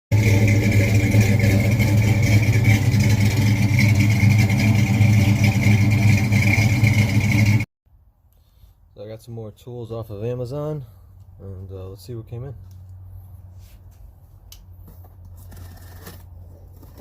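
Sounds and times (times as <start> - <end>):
vehicle engine running: 0.1 - 7.7.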